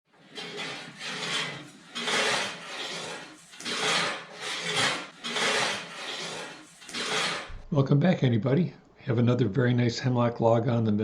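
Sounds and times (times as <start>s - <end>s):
rasping scraping on wood: 0.1s - 7.6s.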